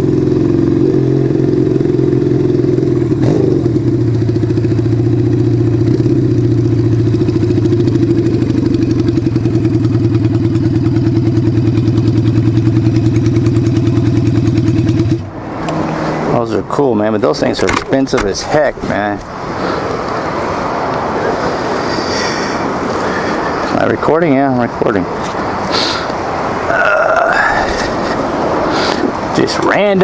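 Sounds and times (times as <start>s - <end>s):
motorcycle engine idling: 0.0s - 15.8s.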